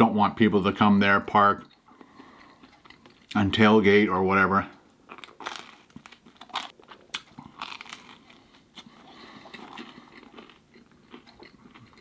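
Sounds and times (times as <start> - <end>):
chewing crispy crust: 2.0 - 3.5, 5.1 - 12.0.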